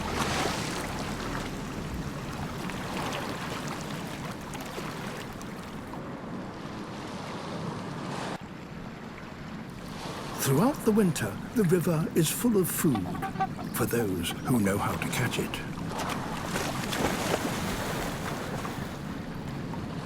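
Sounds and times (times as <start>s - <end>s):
river flowing: 0.0s - 6.0s, 8.4s - 20.0s.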